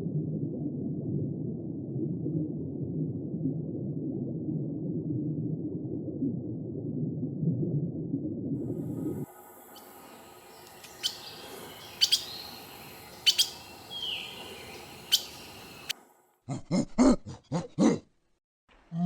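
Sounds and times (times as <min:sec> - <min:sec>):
faint hiss: 0:08.6 - 0:16.1
birds chirping: 0:09.4 - 0:15.9
animal giving deep pulsed calls: 0:09.6 - 0:15.9.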